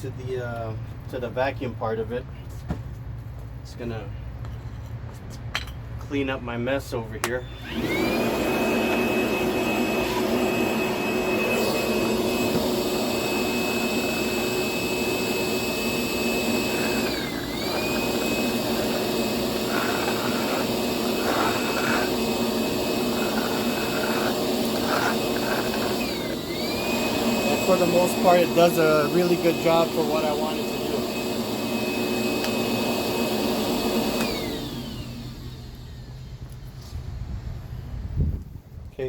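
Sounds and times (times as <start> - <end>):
vacuum motor whine: 7.2 - 37.3.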